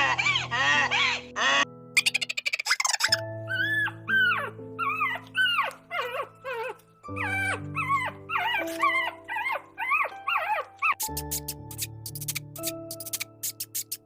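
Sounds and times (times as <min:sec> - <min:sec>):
dog whining and yipping: 0:00.0 - 0:11.5
background music with held notes: 0:00.0 - 0:14.0.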